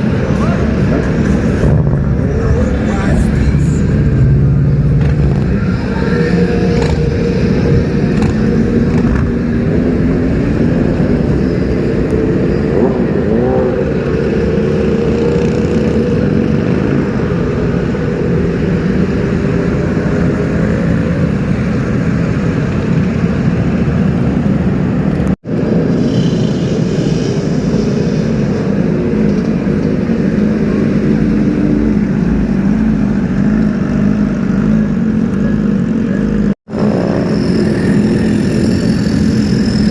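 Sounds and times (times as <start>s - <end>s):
motorcycle engines running: 0.0s - 39.9s.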